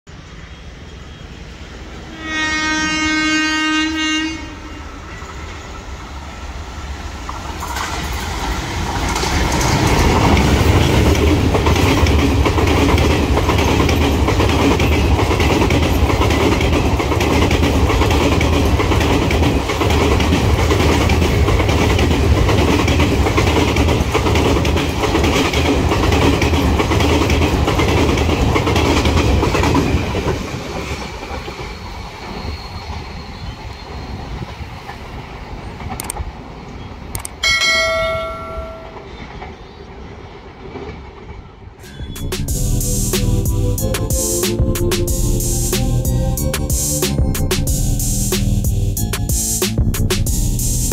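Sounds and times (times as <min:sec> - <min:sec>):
locomotive horn blast: 0:02.1 - 0:04.8
train rumble: 0:04.6 - 0:50.9
wheels clattering over rail joints: 0:07.6 - 0:30.5.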